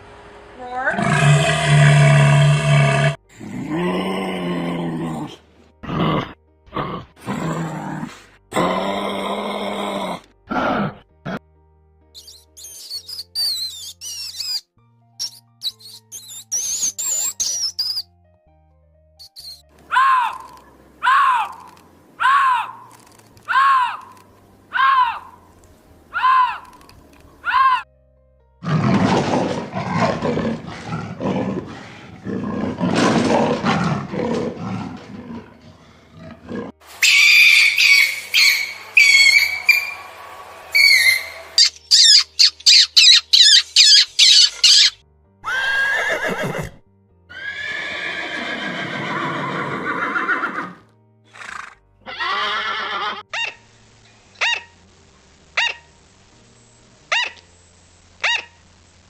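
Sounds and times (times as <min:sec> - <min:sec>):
music: 0:02.3 - 0:59.0
high wavering animal calls: 0:37.0 - 0:40.0, 0:40.7 - 0:46.2.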